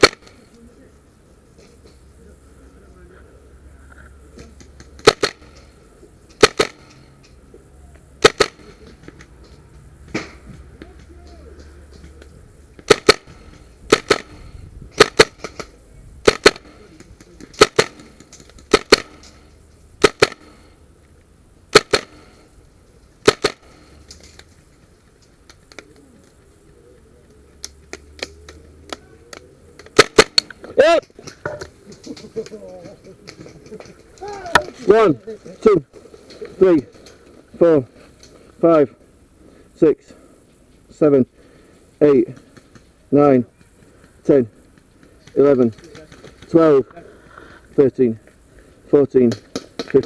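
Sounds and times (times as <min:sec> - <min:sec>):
airsoft gun shots: 0:00.0 - 0:00.4, 0:05.0 - 0:05.6, 0:06.4 - 0:07.0, 0:08.2 - 0:08.9, 0:12.8 - 0:16.9, 0:17.6 - 0:19.4, 0:20.0 - 0:20.7, 0:21.7 - 0:22.4, 0:23.2 - 0:23.9, 0:29.8 - 0:30.6.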